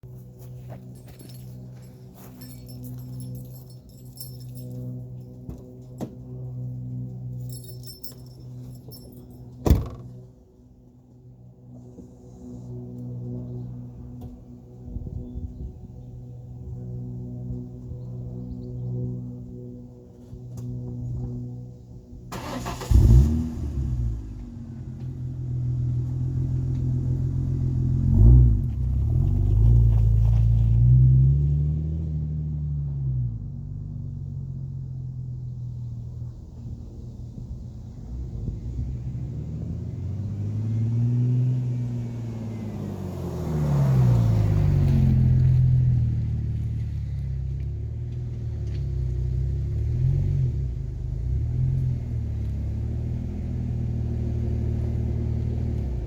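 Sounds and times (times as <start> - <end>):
car engine exhaust note: 13.3 - 56.0
car engine cranking: 22.3 - 23.6.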